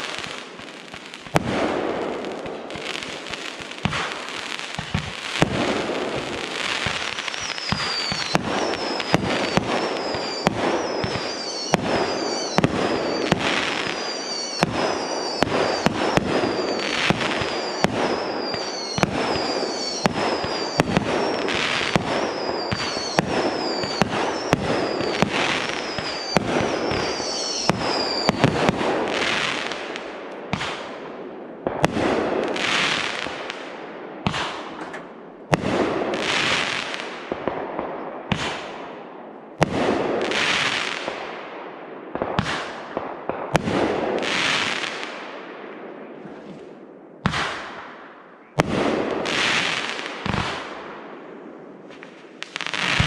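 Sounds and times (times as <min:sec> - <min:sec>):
fireworks banging: 0:00.9 - 0:30.9, 0:34.2 - 0:37.6, 0:48.6 - 0:50.8, 0:51.9 - 0:53.0
fireworks falling whistles: 0:02.8 - 0:30.0, 0:40.2 - 0:41.2, 0:48.4 - 0:50.8, 0:51.9 - 0:53.0.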